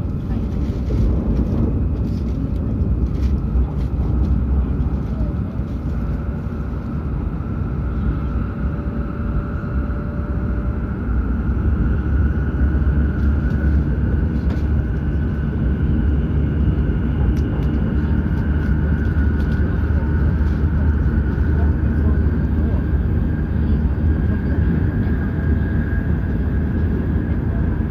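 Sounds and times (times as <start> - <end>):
high-speed train rumble: 0.0 - 27.9.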